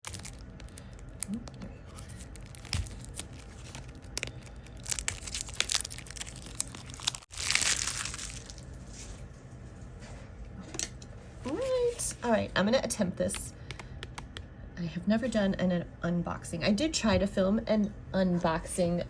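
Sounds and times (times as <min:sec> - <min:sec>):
plastic wrapping crinkling and tearing: 0:00.0 - 0:09.1.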